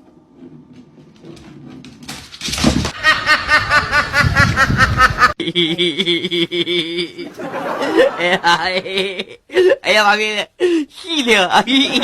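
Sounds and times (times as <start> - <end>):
fast run of laughter: 2.9 - 5.4.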